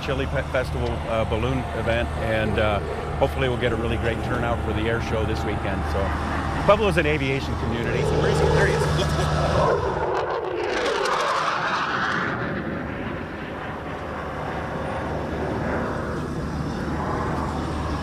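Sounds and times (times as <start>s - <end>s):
aircraft flying past: 0.0s - 18.0s.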